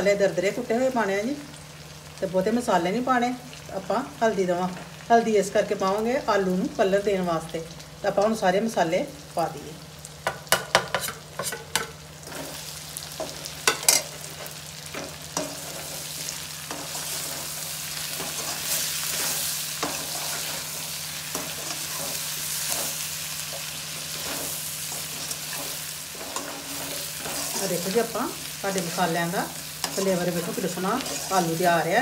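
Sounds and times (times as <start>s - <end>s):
vegetables sizzling in oil: 0.0s - 32.0s
spatula scraping pan: 10.7s - 12.6s, 13.2s - 28.0s, 29.8s - 31.5s.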